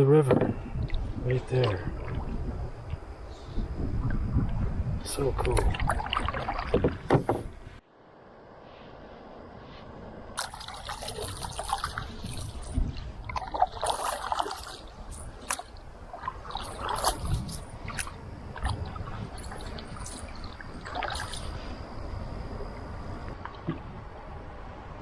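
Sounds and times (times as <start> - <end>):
canoe paddle strokes in water: 0.3 - 7.8, 10.4 - 24.0
water dripping off paddle: 0.4 - 3.0, 4.4 - 7.5, 10.4 - 21.8.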